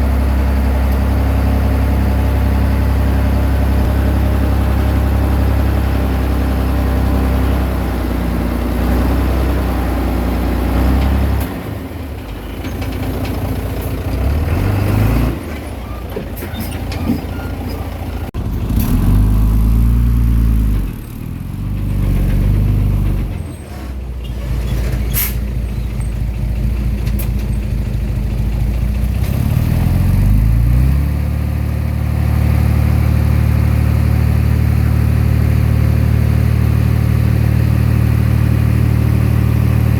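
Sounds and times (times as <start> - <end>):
bulldozer diesel engine working: 0.0 - 39.9.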